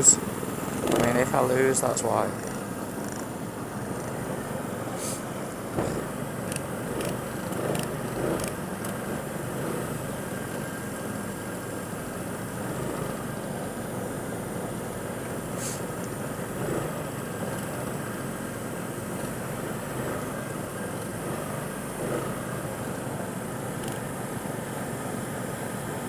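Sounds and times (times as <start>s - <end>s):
go-kart engines running: 0.0s - 26.0s
brief hiss: 4.9s - 5.3s, 15.6s - 15.9s.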